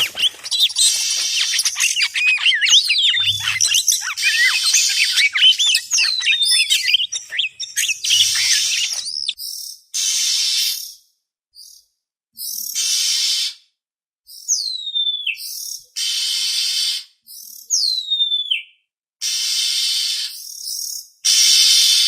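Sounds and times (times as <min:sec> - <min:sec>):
harsh rasping bird calls: 0:00.0 - 0:09.4
short bird chips: 0:00.0 - 0:09.4.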